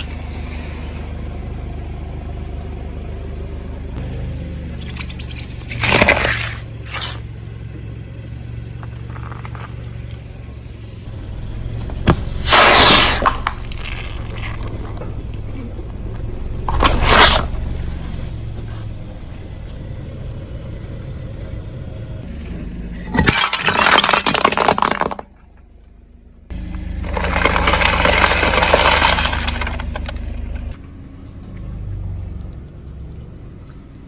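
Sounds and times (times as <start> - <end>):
car engine idling: 11.0 - 22.2, 26.5 - 30.8
tyre crushing objects: 11.1 - 15.5, 16.4 - 22.2, 27.0 - 30.8.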